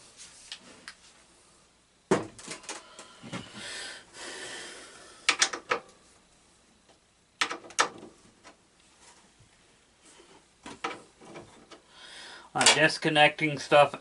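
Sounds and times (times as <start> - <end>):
sharp metallic clicks and knocks: 5.3 - 5.9, 7.4 - 8.1.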